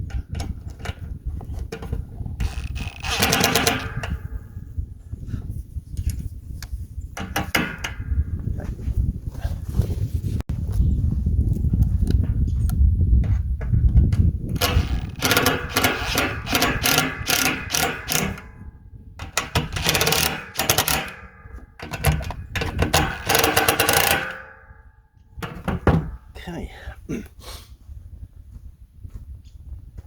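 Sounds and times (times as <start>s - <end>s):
power drill in sheet metal: 2.4s - 4.4s, 14.5s - 18.6s, 19.2s - 24.8s
metal ringing: 2.4s - 4.5s, 7.2s - 8.2s, 14.5s - 26.2s.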